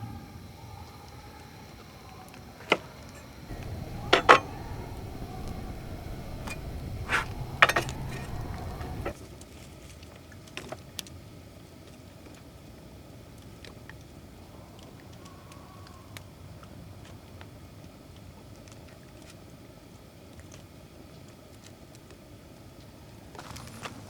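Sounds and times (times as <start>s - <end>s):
cookware clinking: 3.5s - 9.1s
low rumble: 3.5s - 9.1s.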